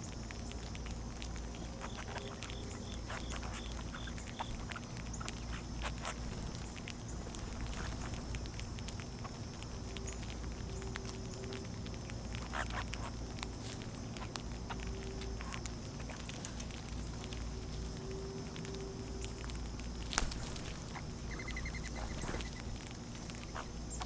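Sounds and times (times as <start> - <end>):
birds clicking and tapping: 0.0 - 24.0
bird chirps: 1.6 - 7.2, 20.9 - 22.7.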